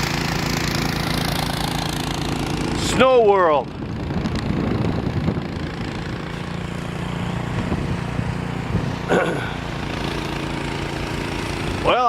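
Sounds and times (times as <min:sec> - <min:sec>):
snow blower engine running: 0:00.0 - 0:12.0.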